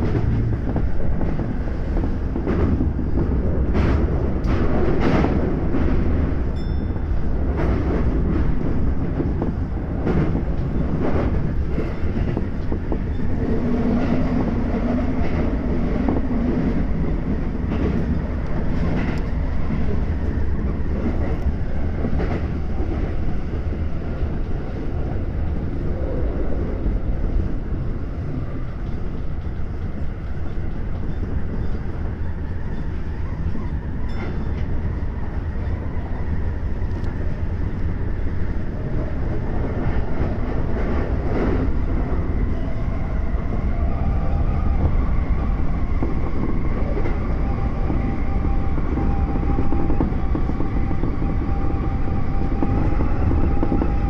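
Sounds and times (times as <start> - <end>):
wheels rumbling on rail: 0.0 - 54.0.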